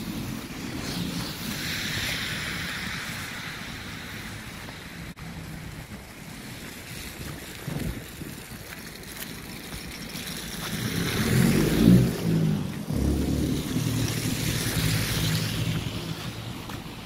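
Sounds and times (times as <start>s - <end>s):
motor vehicle engine: 8.4s - 17.0s.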